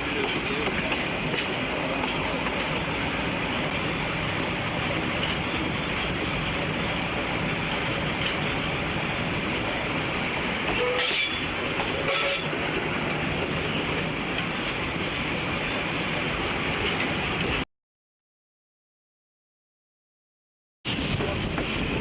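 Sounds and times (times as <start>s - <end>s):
train running on rails: 0.0s - 17.7s, 20.9s - 22.0s
high wheel squeals: 8.4s - 9.6s.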